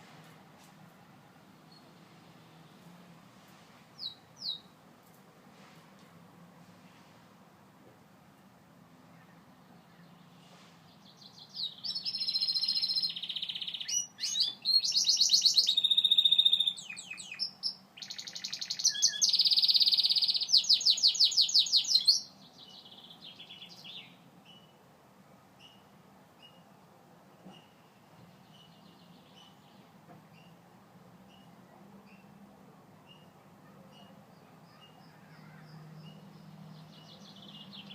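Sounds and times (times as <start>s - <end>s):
canary singing trills: 4.0s - 4.7s, 11.0s - 24.8s, 33.0s - 37.9s.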